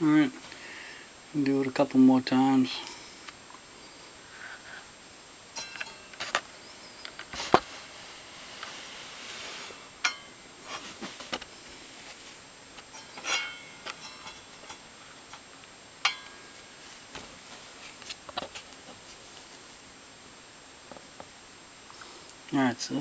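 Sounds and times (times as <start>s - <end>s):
ringing metallic clink: 10.0s - 10.3s, 12.9s - 14.8s, 16.0s - 16.6s.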